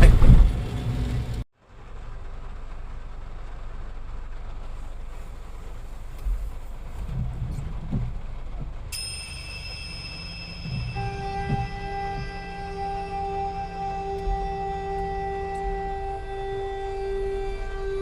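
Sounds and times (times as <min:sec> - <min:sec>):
vehicle rumbling on the move: 0:00.0 - 0:18.0
soft bumps: 0:06.1 - 0:16.1
thin high tones: 0:08.9 - 0:18.0.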